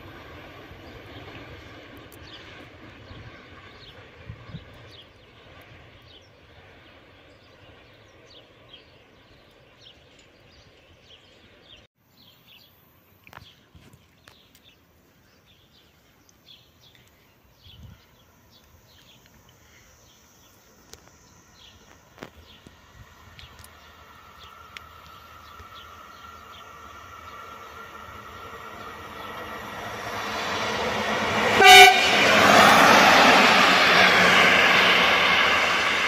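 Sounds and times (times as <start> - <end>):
faint outdoor background hiss: 9.2 - 30.0
birds chirping: 13.3 - 32.4.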